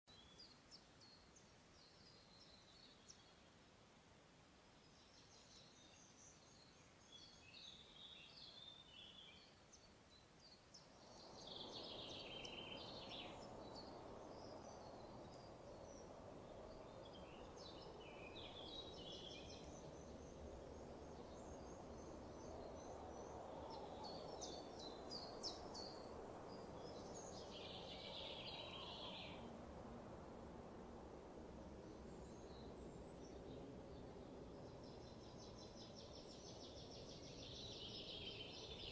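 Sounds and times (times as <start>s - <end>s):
low steady rushing noise: 1.1s - 38.9s.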